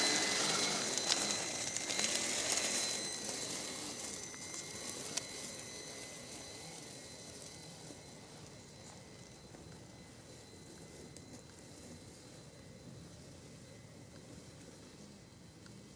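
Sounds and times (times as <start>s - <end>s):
tyres crackling on ground: 0.0s - 5.4s
toy truck motor and gear whine: 0.0s - 15.9s.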